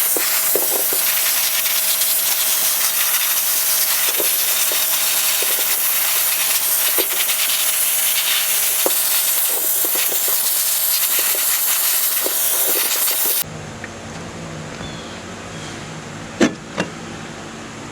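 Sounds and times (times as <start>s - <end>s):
compressed air hissing: 0.0s - 13.4s.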